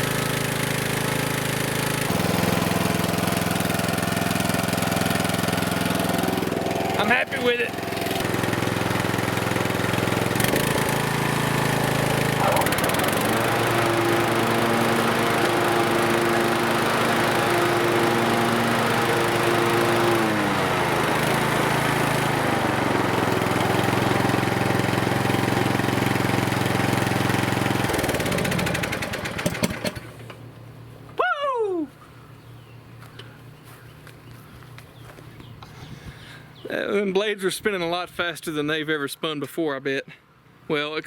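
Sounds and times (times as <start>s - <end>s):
mower engine running: 0.0s - 31.0s
mower blades spinning: 0.1s - 30.4s.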